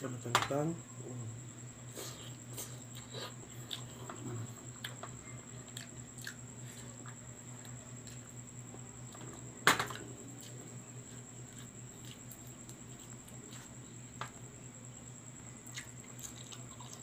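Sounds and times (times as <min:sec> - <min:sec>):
steady low hum: 0:00.0 - 0:17.0
man chewing chicken: 0:01.9 - 0:13.9, 0:15.6 - 0:17.0.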